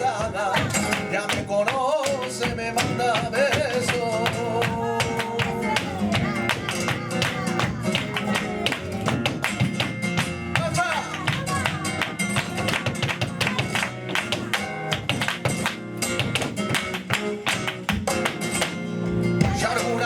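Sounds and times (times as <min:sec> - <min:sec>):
man singing: 0:00.0 - 0:09.9, 0:10.5 - 0:14.9, 0:19.3 - 0:20.0
acoustic guitar: 0:00.0 - 0:20.0.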